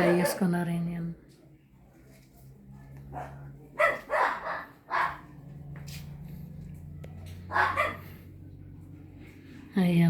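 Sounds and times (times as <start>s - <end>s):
dog barking: 0.0s - 0.6s, 3.1s - 5.4s, 7.4s - 8.2s.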